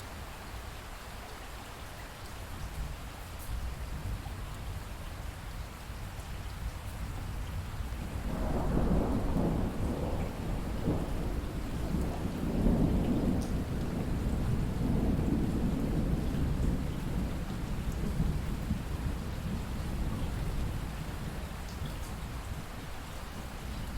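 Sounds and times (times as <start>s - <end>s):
steady rain: 0.0s - 23.9s
rolling thunder: 8.1s - 21.4s.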